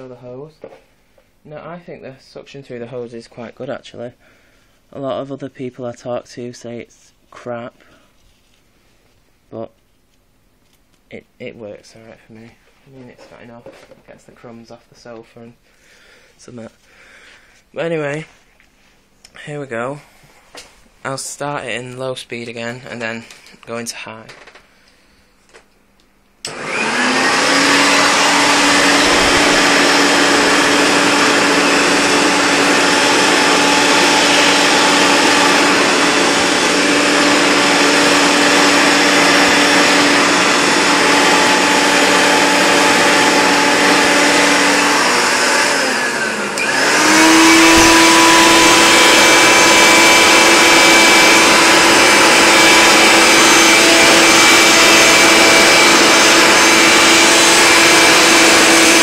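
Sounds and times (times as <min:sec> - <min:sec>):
vacuum cleaner motor running: 0:26.5 - 0:59.0.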